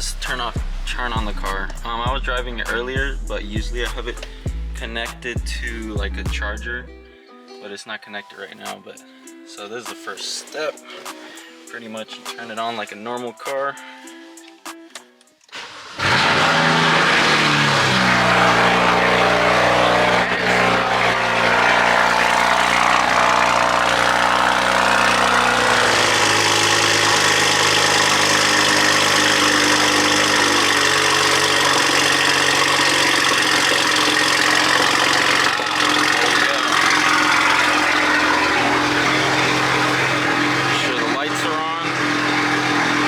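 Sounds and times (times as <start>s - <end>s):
car engine cold start: 15.5s - 43.0s.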